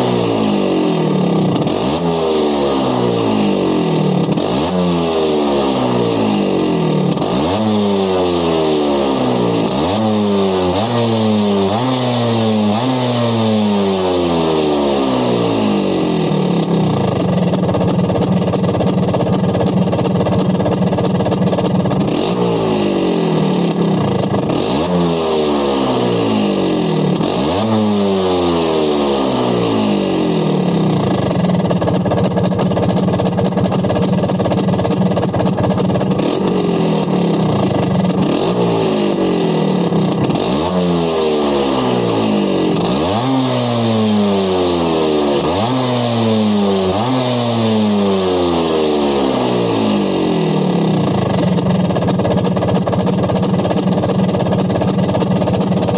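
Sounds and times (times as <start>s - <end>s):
scooter engine idling and revving: 0.0s - 55.9s.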